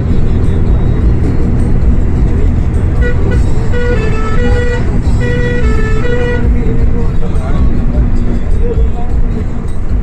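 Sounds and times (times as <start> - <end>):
bus engine rumbling: 0.0 - 10.0
bus musical horn: 2.5 - 7.2.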